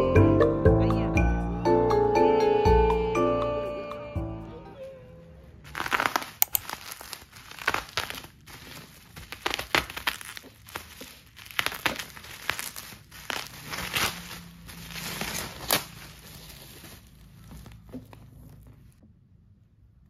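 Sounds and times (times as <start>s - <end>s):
packaging crinkling and rustling: 5.7s - 19.0s.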